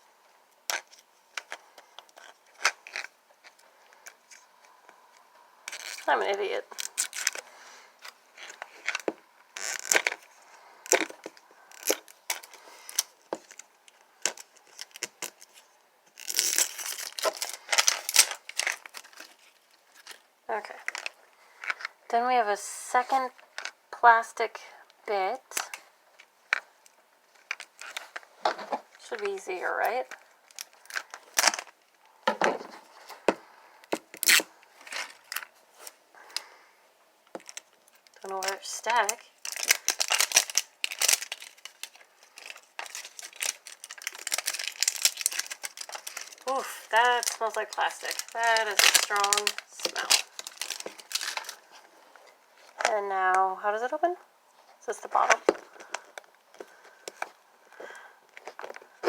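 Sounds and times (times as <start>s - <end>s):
plastic packaging tearing and crinkling: 0.7s - 4.4s, 5.6s - 21.9s, 26.5s - 32.0s, 33.9s - 36.0s, 37.4s - 52.9s.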